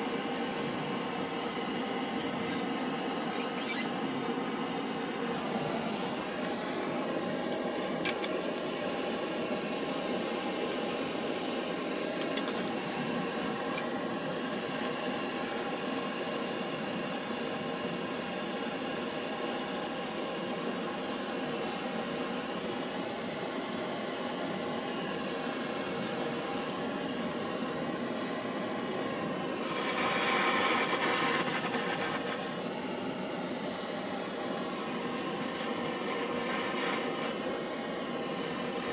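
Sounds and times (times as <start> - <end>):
blowtorch flame roaring: 0.0 - 38.9.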